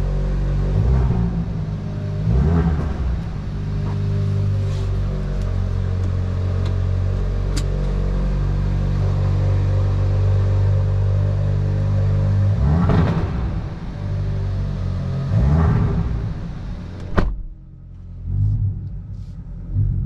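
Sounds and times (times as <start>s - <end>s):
car engine and exhaust drone: 0.0s - 20.0s.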